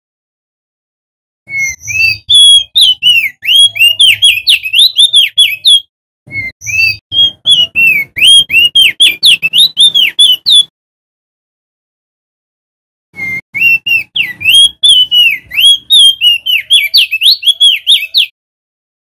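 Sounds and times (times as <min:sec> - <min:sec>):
bird singing whistled notes: 0:01.5 - 0:10.7, 0:13.2 - 0:18.4.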